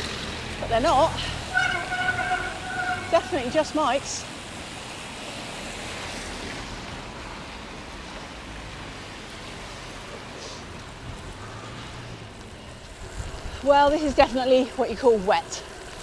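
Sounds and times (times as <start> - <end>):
heavy rain hissing: 0.0 - 6.3
bicycle tyres on wet road: 0.0 - 16.0.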